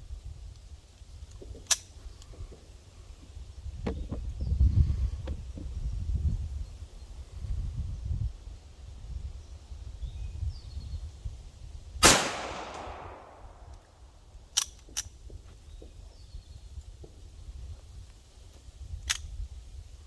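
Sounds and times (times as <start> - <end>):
wind on the microphone: 0.0 - 14.4, 15.1 - 20.0
pistol shot ringing: 12.0 - 13.8
sharp clicks: 12.0 - 13.9.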